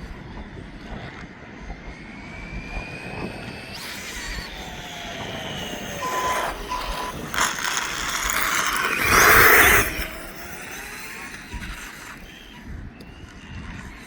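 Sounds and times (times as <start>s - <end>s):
electric motor whining: 0.1s - 14.0s.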